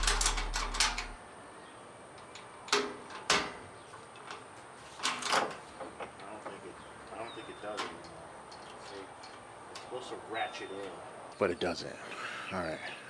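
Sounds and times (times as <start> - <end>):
ratchet strap clicks: 0.0 - 1.2.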